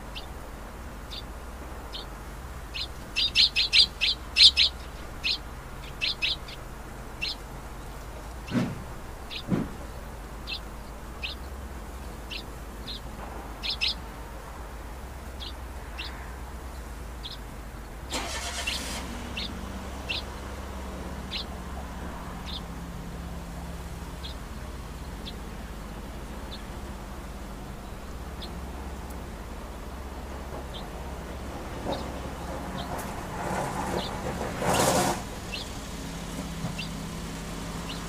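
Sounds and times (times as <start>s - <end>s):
bird chirping: 0.0s - 0.4s, 1.0s - 14.2s, 15.2s - 38.0s
distant city traffic: 0.0s - 38.0s
loud rushing noise: 31.4s - 38.0s.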